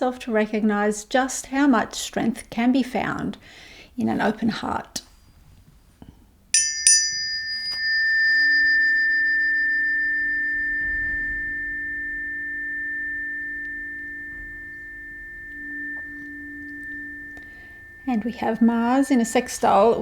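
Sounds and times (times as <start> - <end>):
tuning forks ringing: 6.6 - 20.0.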